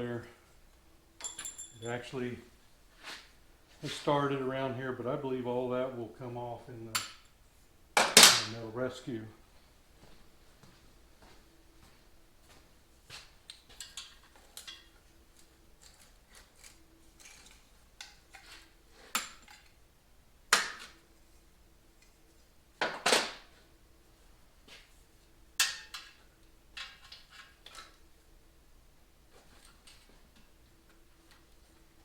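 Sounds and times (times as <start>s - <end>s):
metal parts clinking on workbench: 1.2s - 1.9s.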